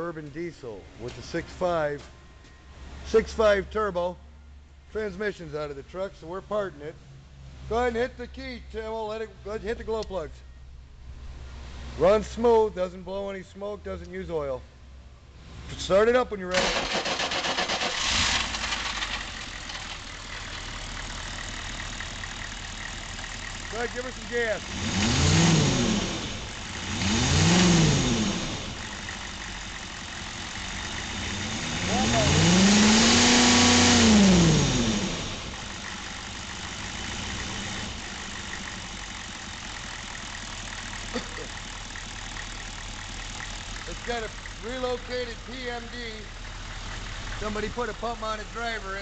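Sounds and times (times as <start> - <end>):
diesel engine starting and idling: 15.6 - 49.0.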